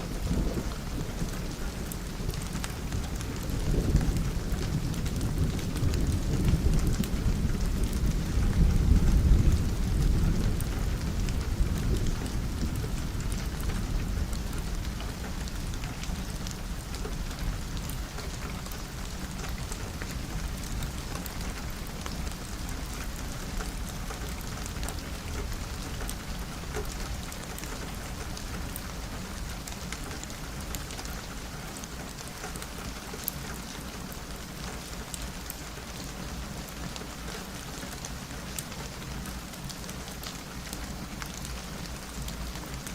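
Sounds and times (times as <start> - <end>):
rain on a window: 0.0 - 42.9.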